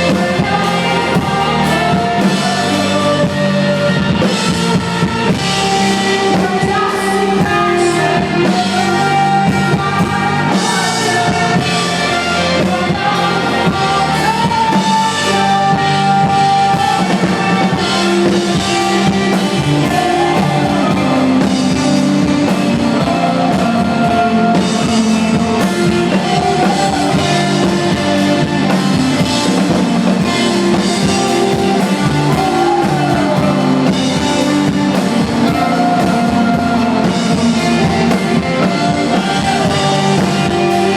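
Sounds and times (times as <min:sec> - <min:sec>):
bass guitar: 0:00.0 - 0:40.9
drum kit: 0:00.0 - 0:40.9
electric guitar: 0:00.0 - 0:40.9
person singing: 0:00.0 - 0:40.9.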